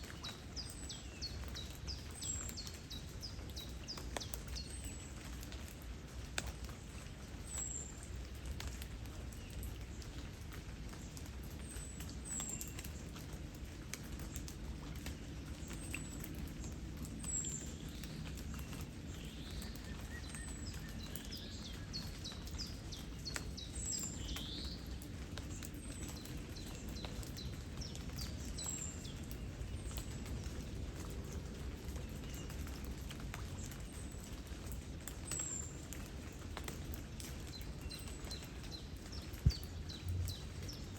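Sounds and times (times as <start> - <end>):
flowing water: 0.0 - 40.9
light rain pattering: 0.0 - 40.9.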